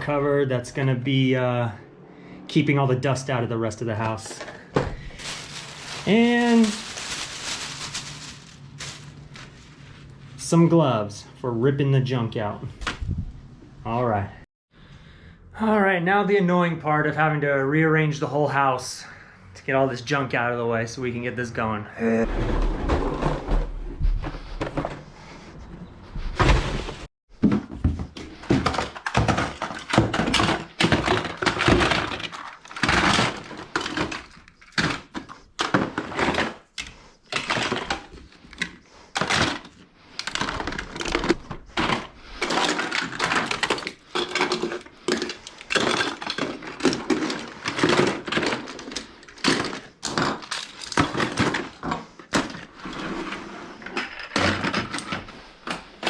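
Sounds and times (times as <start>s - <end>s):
objects knocking and clattering: 4.0s - 9.7s, 26.2s - 53.0s, 53.8s - 56.0s.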